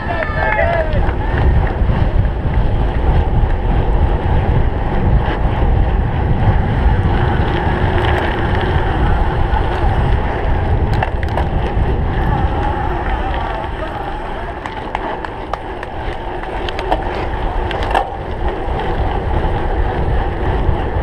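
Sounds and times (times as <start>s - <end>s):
bike rumbling on rough ground: 0.0s - 21.0s
wind buffeting microphone: 0.0s - 21.0s.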